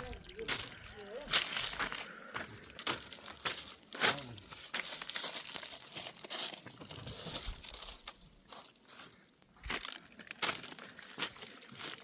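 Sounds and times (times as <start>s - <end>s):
material crinkling and rustling: 3.6s - 12.0s.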